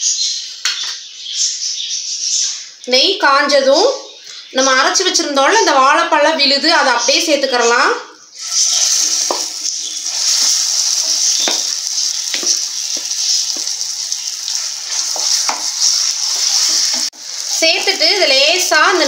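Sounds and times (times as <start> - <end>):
paste sizzling in frying pan: 8.3 - 19.0
spatula tapping and scraping pan: 9.2 - 9.7, 11.0 - 17.1.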